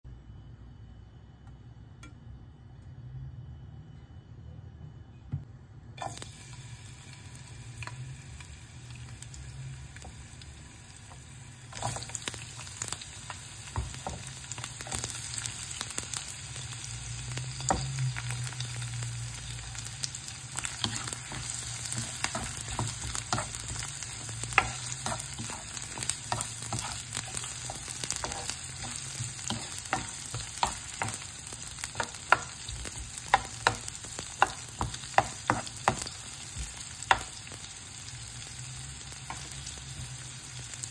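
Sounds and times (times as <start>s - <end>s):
onions sizzling in hot oil: 6.0s - 40.9s
stirring taps against a pan: 31.9s - 37.3s.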